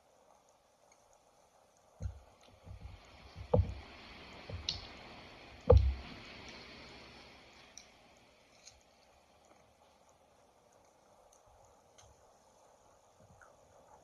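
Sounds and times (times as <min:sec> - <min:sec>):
dull thumps of gnawing: 0:02.0 - 0:03.9, 0:05.7 - 0:06.1.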